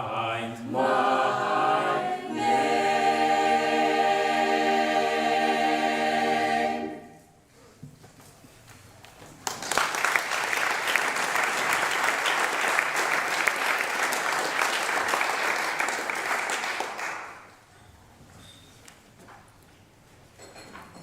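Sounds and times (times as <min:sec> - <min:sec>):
audience applauding: 0:09.4 - 0:17.6.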